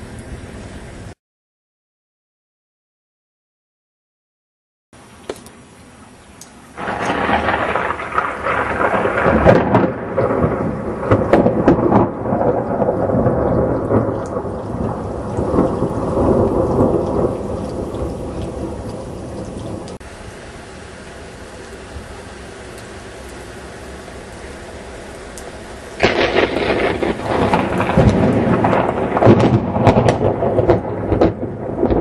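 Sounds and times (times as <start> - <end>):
steady rain: 0.0 - 1.2, 5.0 - 32.0
thunder rolling and rumbling: 6.8 - 20.0, 23.9 - 32.0.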